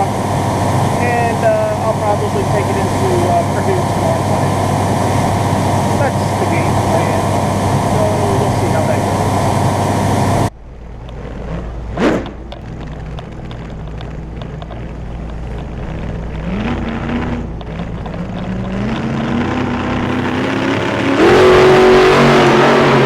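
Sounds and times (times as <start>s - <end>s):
loud rising sweep: 0.0s - 10.5s, 18.5s - 23.0s
vehicle engine accelerating: 0.0s - 23.0s.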